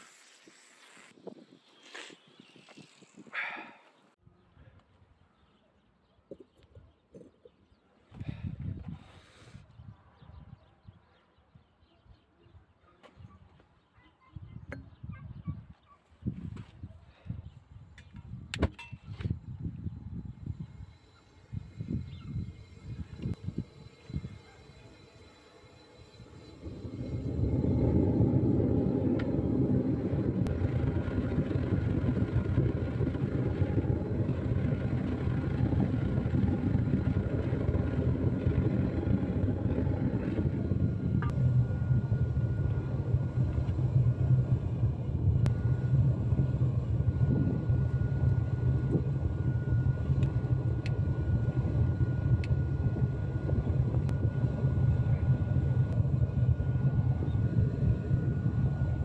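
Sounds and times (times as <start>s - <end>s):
thin steady whine: 19.2s - 59.0s
furnace burner rushing: 20.4s - 59.0s.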